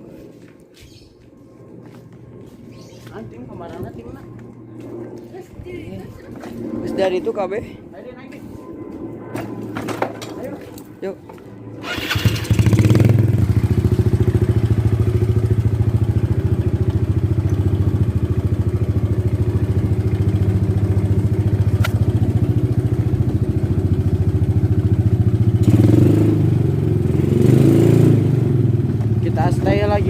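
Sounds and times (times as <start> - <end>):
motorcycle engine idling: 11.8 - 25.8.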